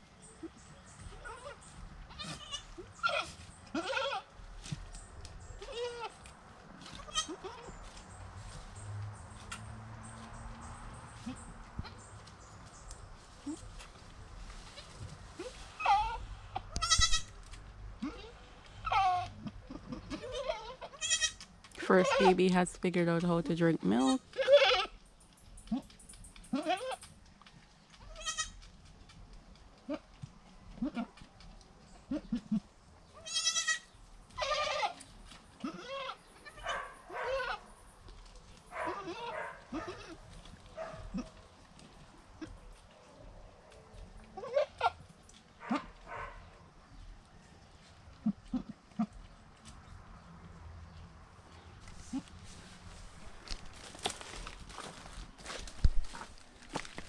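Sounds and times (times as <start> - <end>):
goats bleating: 2.1 - 4.3, 7.0 - 7.7, 16.7 - 17.3, 18.0 - 21.4, 28.1 - 28.6, 33.2 - 33.8, 34.4 - 35.0.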